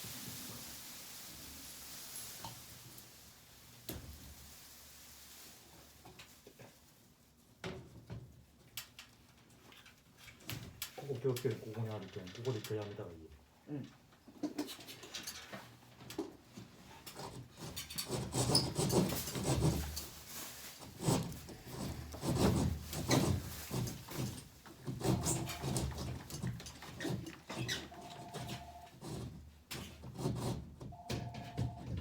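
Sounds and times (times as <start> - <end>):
hand saw cutting board: 17.1 - 20.0, 20.8 - 30.7
short pulsing beep: 31.0 - 31.9.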